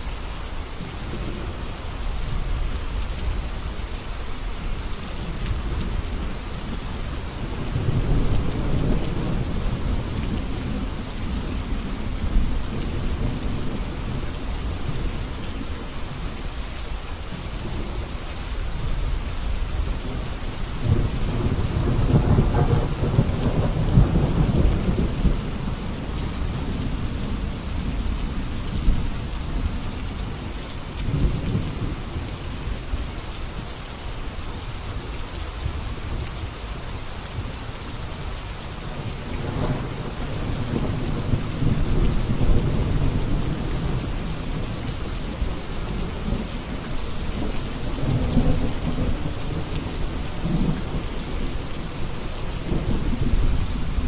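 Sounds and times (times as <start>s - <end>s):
steady rain: 0.0s - 54.0s
rolling thunder rumbles: 5.2s - 15.8s, 19.1s - 32.7s, 39.0s - 54.0s.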